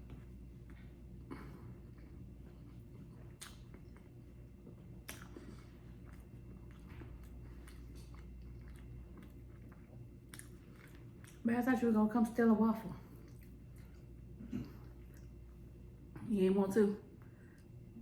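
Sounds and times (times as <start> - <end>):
person chewing food: 0.0 - 11.5, 13.0 - 15.8
low steady hum: 0.0 - 18.0
wet mouth clicks: 3.3 - 4.0, 5.0 - 6.2.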